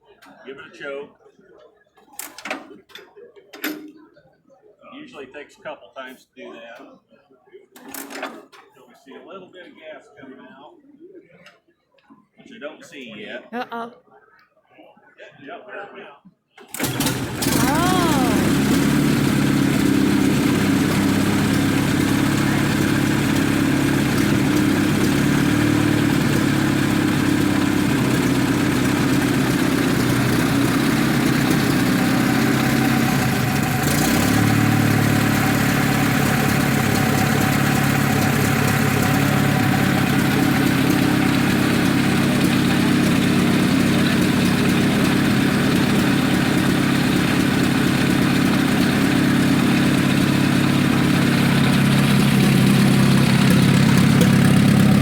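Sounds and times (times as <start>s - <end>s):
tractor engine idling: 16.7s - 55.0s.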